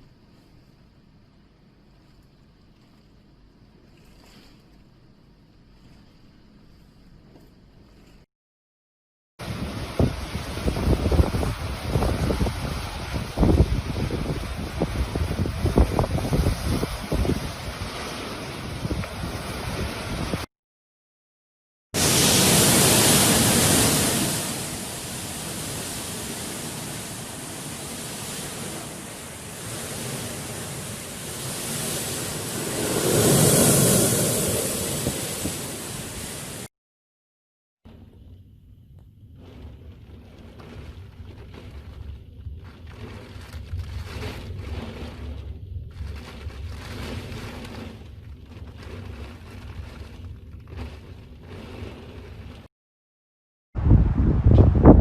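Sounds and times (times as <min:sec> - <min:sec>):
rushing storm noise: 0:09.4 - 0:20.5, 0:22.0 - 0:36.7, 0:53.8 - 0:55.0.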